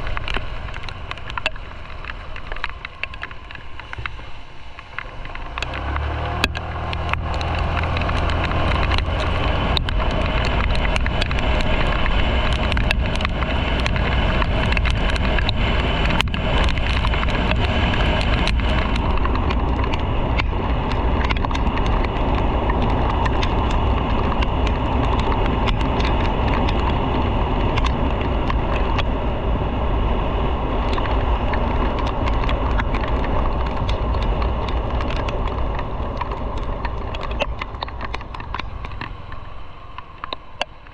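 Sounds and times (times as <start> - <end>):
small clicks: 0.0 - 29.1, 30.8 - 40.9
motorcycle engine: 0.0 - 40.9
wind and road noise: 0.0 - 40.9.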